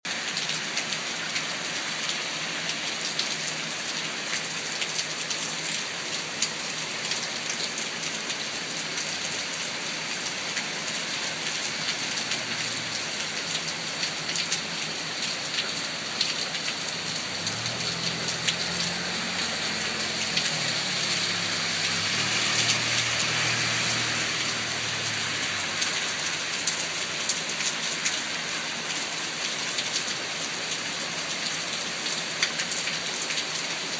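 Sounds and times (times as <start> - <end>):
rain falling: 0.1 - 33.9
raindrops ticking: 11.6 - 28.3.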